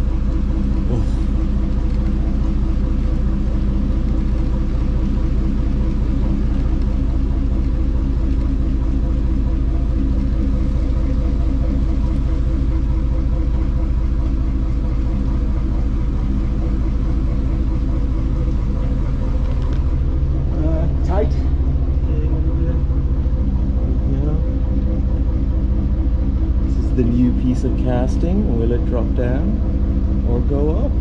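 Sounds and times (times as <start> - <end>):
diesel boat engine idling: 0.0 - 31.0.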